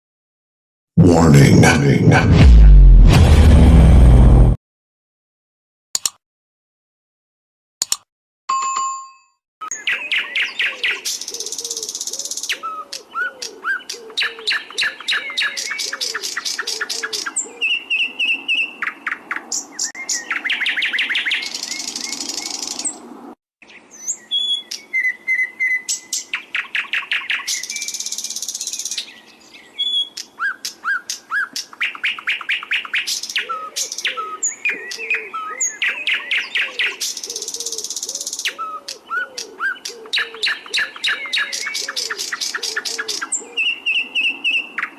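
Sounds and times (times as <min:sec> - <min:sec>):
songbirds trilling: 0:09.6 - 0:44.9.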